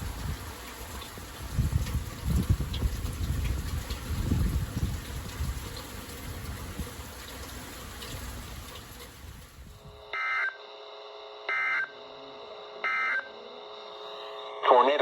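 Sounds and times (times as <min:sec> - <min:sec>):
low rumbling outdoor noise: 0:00.0 - 0:15.0
weather radio warbling data bursts: 0:11.5 - 0:15.0.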